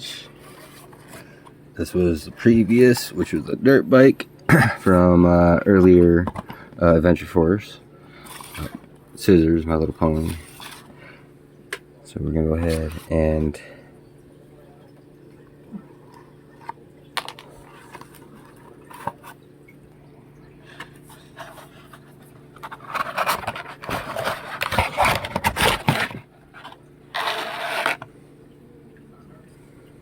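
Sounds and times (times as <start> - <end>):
loud scraping and rustling: 21.1 - 28.1
scissors cutting cardboard box: 23.0 - 26.2.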